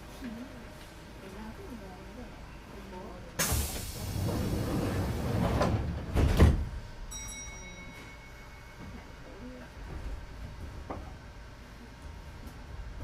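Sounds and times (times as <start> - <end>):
doors closing bang: 3.4 - 6.8
train doors sliding shut: 3.4 - 6.8.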